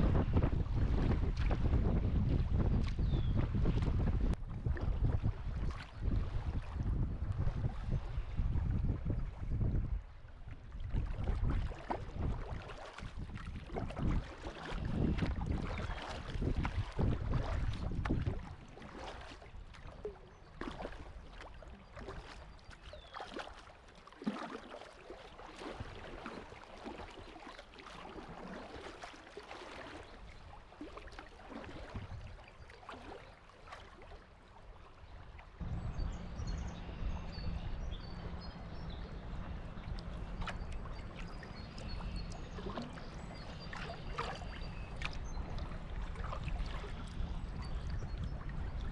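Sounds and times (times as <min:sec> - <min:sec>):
wind buffeting microphone: 0:00.0 - 0:19.4, 0:31.7 - 0:32.4, 0:35.6 - 0:48.9
water rushing past hull: 0:00.0 - 0:48.9
paddle strokes splashing: 0:10.4 - 0:35.6, 0:37.0 - 0:48.9.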